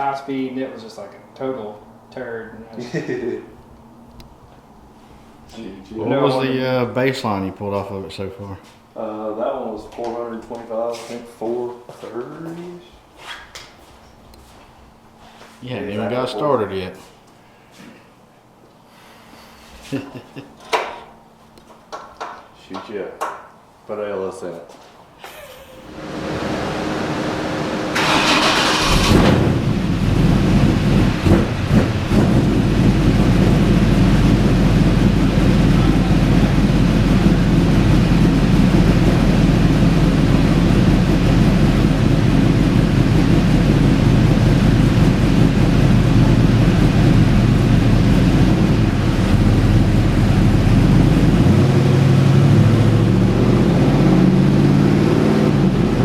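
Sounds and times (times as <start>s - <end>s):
engine running on dyno: 25.9s - 56.0s
engine starting: 28.0s - 29.7s.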